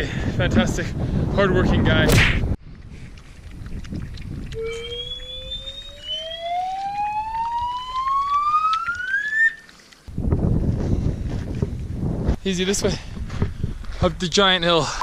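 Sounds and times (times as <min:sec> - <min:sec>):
wind rumble on microphone: 0:00.0 - 0:09.0, 0:10.1 - 0:14.7
rising tone riser effect: 0:04.6 - 0:09.7.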